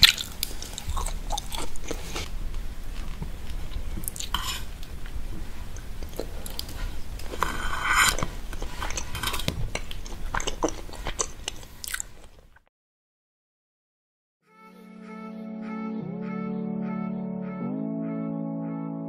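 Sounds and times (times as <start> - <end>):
chewing with wet mouth clicks: 0.0 - 2.3, 3.0 - 4.4, 5.7 - 12.5
plastic fork scraping: 6.8 - 10.0.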